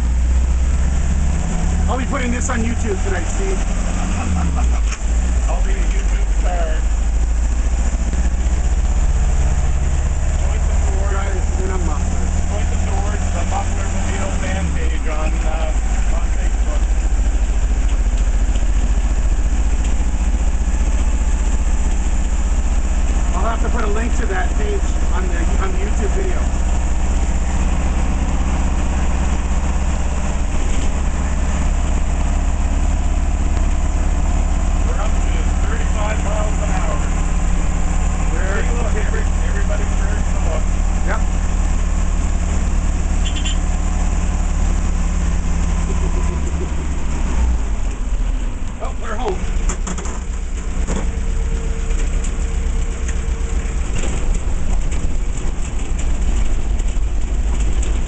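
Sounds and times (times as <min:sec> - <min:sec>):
car engine humming: 0:00.0 - 0:58.0
wind and road noise: 0:00.0 - 0:58.0.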